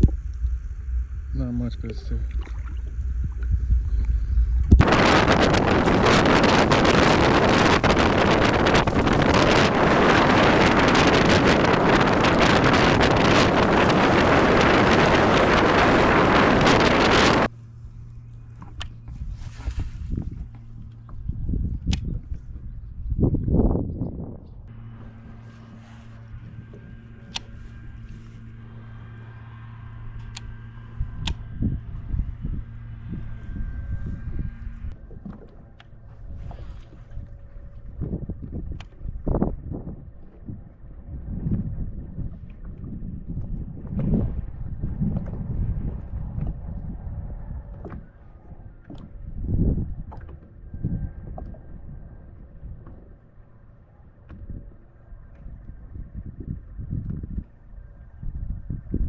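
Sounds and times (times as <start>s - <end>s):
low rumbling knocks: 0.0s - 17.5s
wind buffeting microphone: 0.0s - 17.5s, 19.0s - 59.0s
small motor humming: 2.6s - 18.8s, 24.7s - 34.9s.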